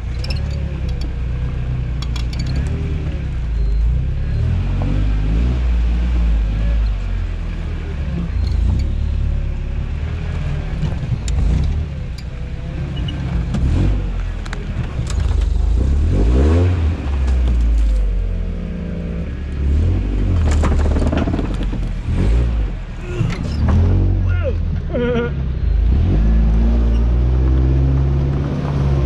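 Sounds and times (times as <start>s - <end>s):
truck engine revving: 0.0s - 29.0s
sharp knocks and clunks: 20.3s - 22.4s.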